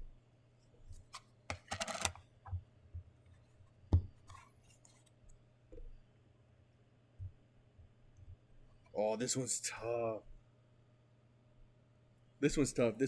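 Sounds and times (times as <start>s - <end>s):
packaging clicks and taps: 1.5s - 2.2s.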